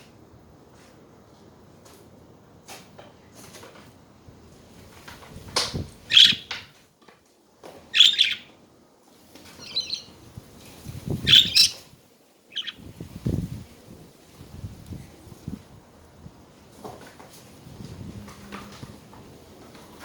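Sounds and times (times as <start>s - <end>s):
budgerigars chirping: 6.1s - 6.5s, 8.0s - 8.5s, 9.6s - 10.1s, 11.2s - 11.8s, 12.5s - 12.8s.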